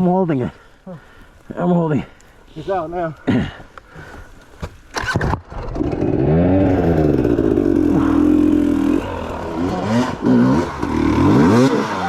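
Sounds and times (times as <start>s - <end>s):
dirt bike engine revving: 5.0s - 12.0s.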